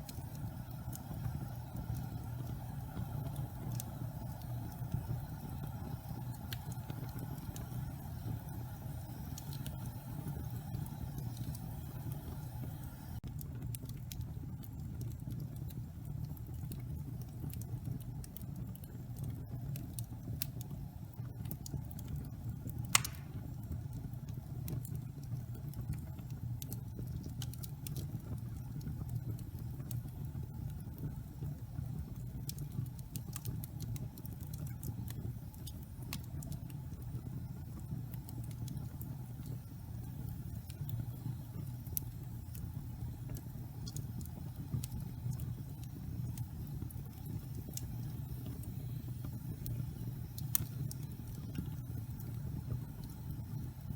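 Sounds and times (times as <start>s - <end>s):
fire burning in fireplace: 0.0s - 53.9s
fire crackling: 0.0s - 53.9s
loud pop of fire: 22.9s - 23.6s.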